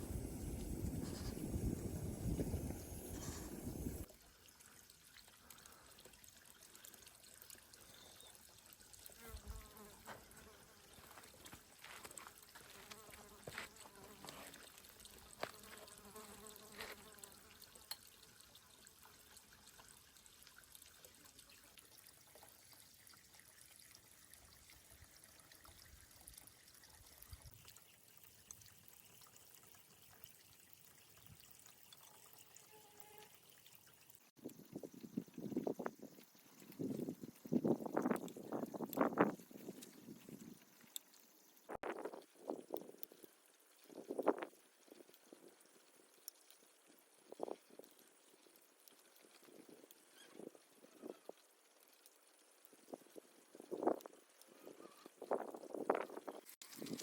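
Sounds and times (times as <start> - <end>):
faint clicks and ticks: 34.0 - 54.5.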